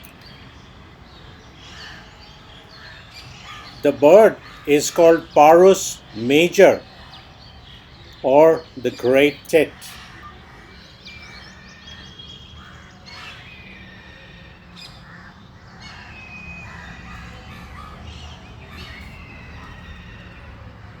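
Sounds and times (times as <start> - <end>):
birds calling: 0.0 - 20.6.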